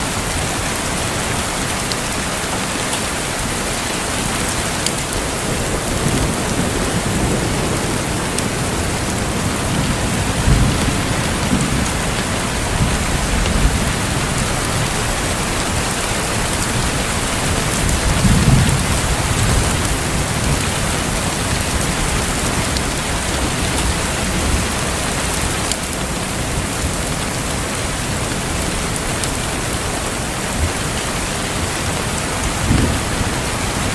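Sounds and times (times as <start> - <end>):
rain falling: 0.0 - 33.9
thunder rumbling: 3.0 - 33.9.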